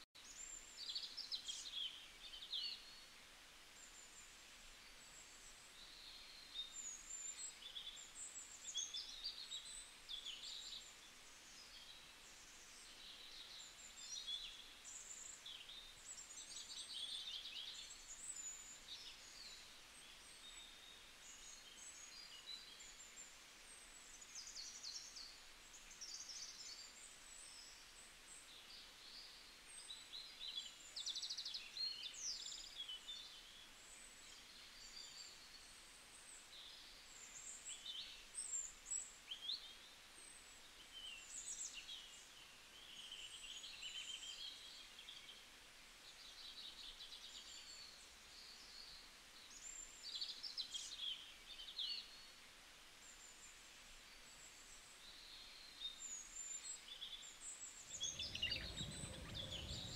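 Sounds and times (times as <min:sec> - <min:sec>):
background hiss: 0:00.0 - 0:59.9
small birds chirping: 0:46.0 - 0:59.9.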